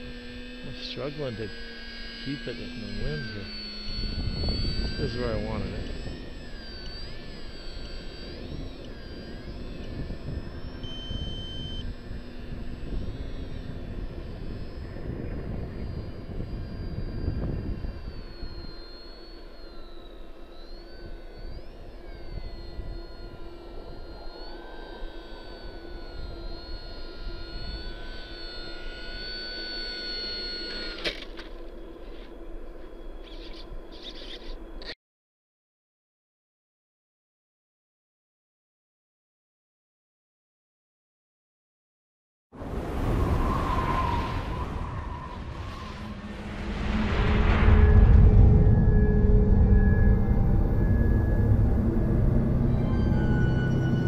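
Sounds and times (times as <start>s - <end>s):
electric motor and propeller whining: 0.0s - 35.0s, 42.6s - 54.0s
wind rumble on microphone: 2.3s - 19.3s, 20.9s - 28.3s, 42.6s - 54.0s
sharp click: 30.9s - 31.6s.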